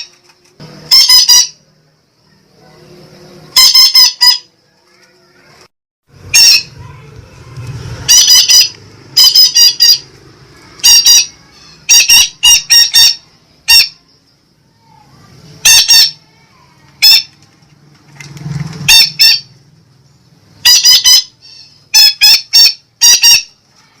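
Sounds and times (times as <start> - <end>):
parakeet squawking: 0.9 - 1.6, 3.5 - 4.5, 6.2 - 7.1, 8.0 - 14.1, 15.6 - 17.4, 18.8 - 19.6, 20.6 - 23.6.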